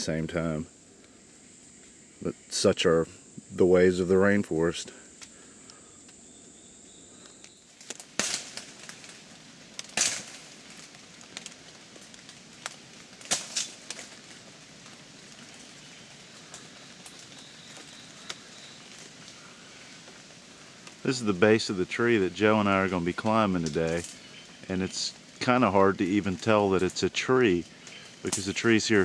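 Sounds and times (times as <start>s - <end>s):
twigs and leaves rustling: 3.3s - 29.0s
sharp twig cracks: 7.2s - 20.2s, 23.6s - 24.7s.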